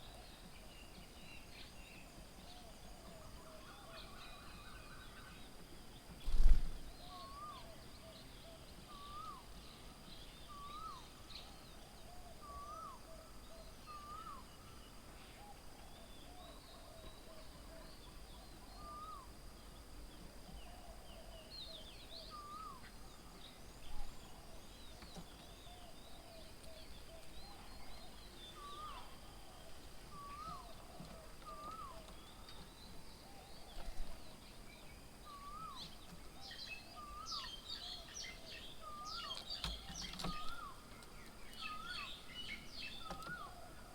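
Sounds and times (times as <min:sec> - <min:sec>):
birds wavering notes and chirps: 0:20.5 - 0:43.9.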